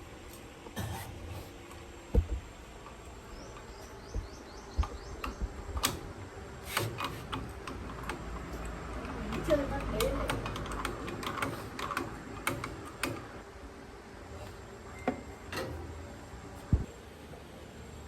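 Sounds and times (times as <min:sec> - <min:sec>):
hand tools clicking on metal: 0:06.7 - 0:13.4.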